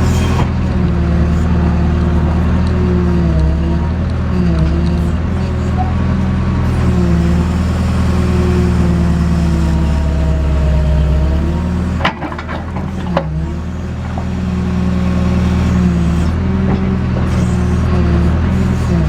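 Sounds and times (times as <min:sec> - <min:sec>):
diesel engine running under load: 0:00.0 - 0:19.0.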